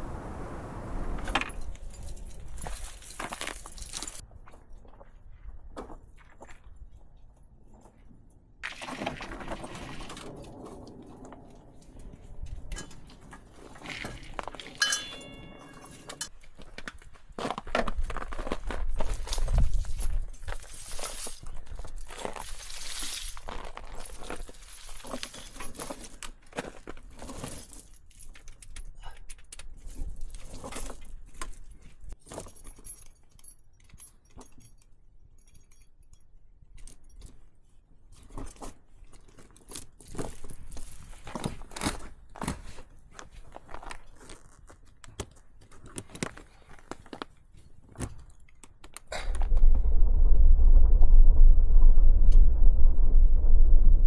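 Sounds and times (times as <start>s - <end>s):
small hard objects clinking: 12.4s - 17.0s.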